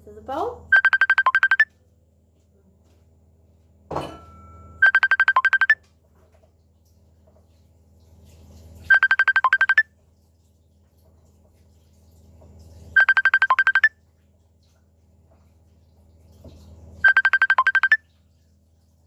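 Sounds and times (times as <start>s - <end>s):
electronic phone ringtone trill: 0.7s - 1.7s, 4.8s - 5.8s, 8.9s - 9.8s, 13.0s - 13.9s, 17.0s - 18.0s.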